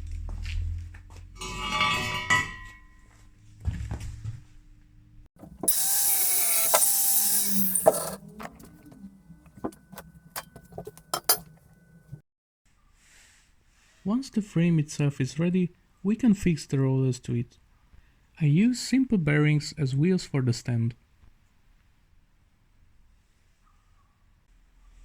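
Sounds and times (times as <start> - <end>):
power tool running: 5.4 - 12.1
metal clicks and knocks: 8.2 - 12.2.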